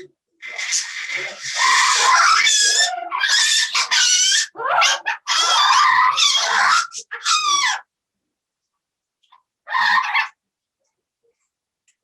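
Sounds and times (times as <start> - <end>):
parrot screeching: 0.4 - 7.9, 9.7 - 10.4.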